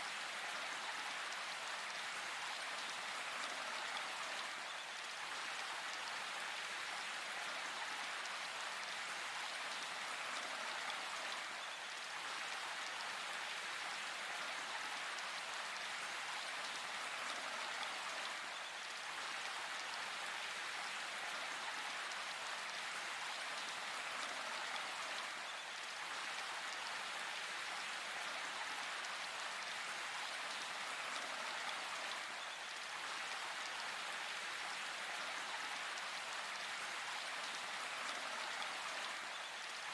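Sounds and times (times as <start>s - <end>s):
rain falling in forest: 0.0s - 39.9s.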